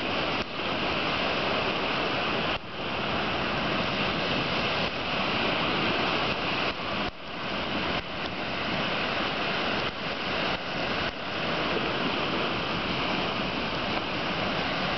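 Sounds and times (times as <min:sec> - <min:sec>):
surf breaking on shore: 0:00.0 - 0:14.9
wind: 0:00.0 - 0:14.9.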